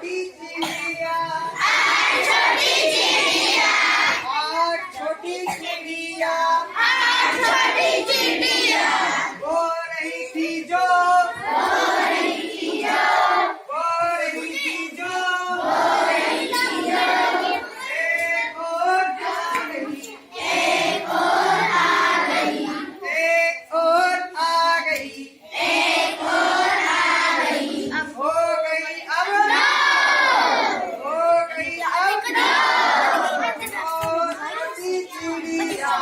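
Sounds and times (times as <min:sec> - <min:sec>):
children singing in chorus: 0:00.6 - 0:04.3, 0:05.4 - 0:09.4, 0:11.1 - 0:23.1, 0:25.5 - 0:28.2, 0:29.1 - 0:31.0, 0:32.1 - 0:33.6.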